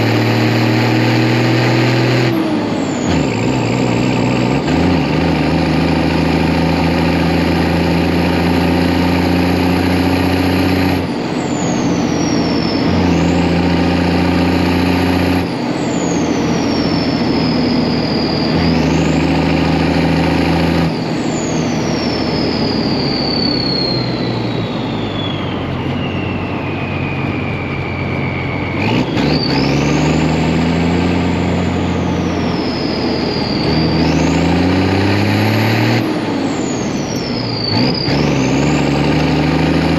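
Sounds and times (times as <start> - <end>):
truck engine revving: 0.0 - 39.9
turbo high whistle: 15.3 - 20.1, 20.8 - 30.3, 31.2 - 34.7.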